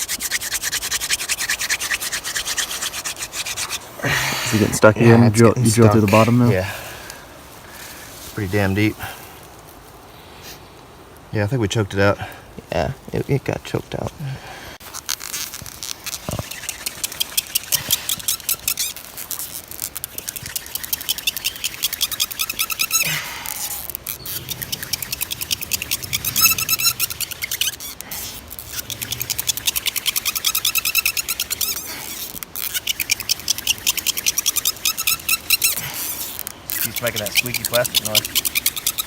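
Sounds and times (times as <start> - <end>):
hand drill squeaking in wood: 0.0 - 6.8, 14.8 - 39.0.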